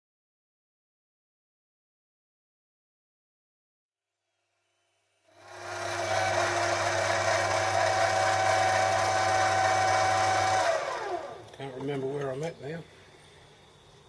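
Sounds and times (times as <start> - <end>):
lathe motor humming and whining: 5.4 - 11.6.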